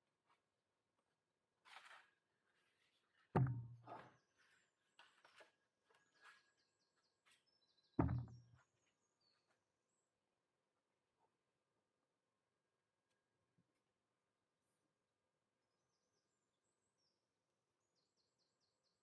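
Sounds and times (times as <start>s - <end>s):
rustling of objects handled: 1.6s - 6.6s
heavy thuds with low ring: 3.4s - 3.9s, 8.0s - 8.5s.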